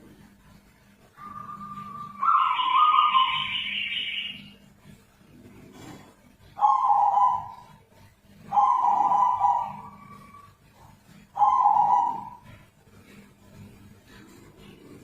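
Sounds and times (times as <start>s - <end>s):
dove giving drawn-out calls: 1.2s - 4.5s, 6.4s - 7.8s, 8.5s - 10.6s, 11.2s - 12.7s.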